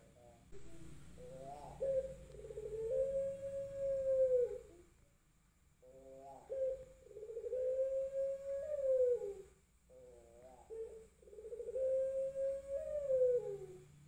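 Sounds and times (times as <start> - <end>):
dove cooing: 0.0 - 5.0, 5.8 - 14.0.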